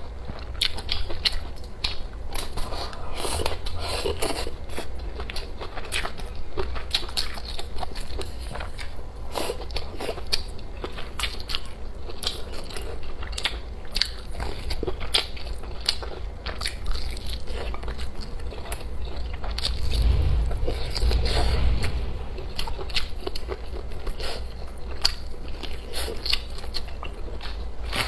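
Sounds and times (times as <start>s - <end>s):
steady low hum: 19.3s - 23.3s.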